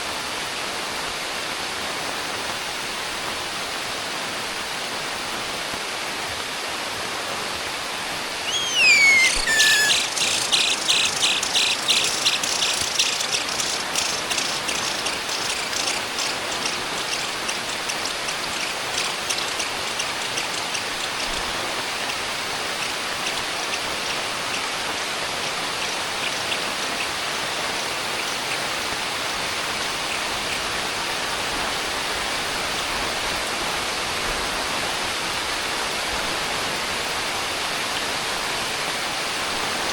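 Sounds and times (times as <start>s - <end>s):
bird whistled call: 8.4s - 17.9s
high chirps of nestlings: 8.4s - 21.3s.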